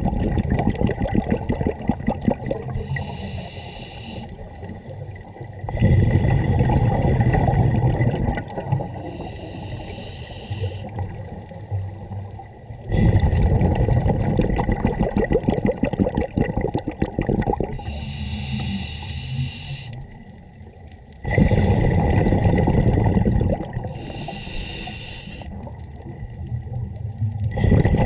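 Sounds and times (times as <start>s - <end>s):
bubbling regulator exhalations: 0.0s - 11.3s, 12.8s - 20.1s, 21.2s - 25.8s, 27.4s - 28.0s
hissing regulator inhalation: 2.8s - 4.8s, 8.7s - 10.9s, 17.8s - 20.0s, 23.9s - 25.5s.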